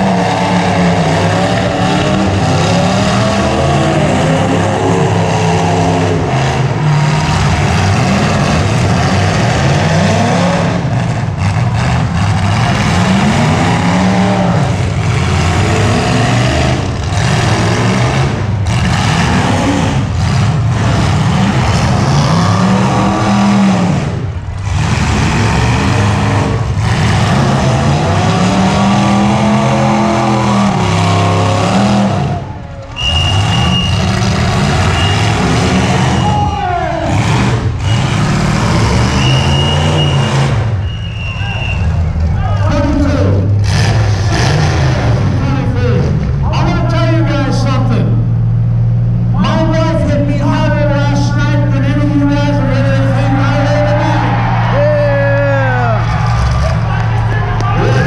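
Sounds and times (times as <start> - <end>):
car engines revving hard: 0.0 - 58.0.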